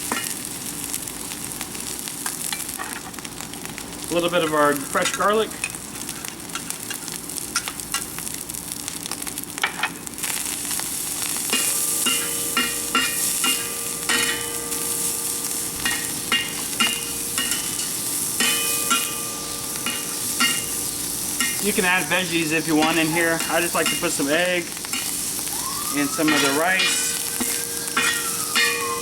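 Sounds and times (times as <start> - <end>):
rice sizzling in a wok: 0.0 - 29.0
metal utensil scraping a wok: 11.3 - 25.4, 26.3 - 28.9.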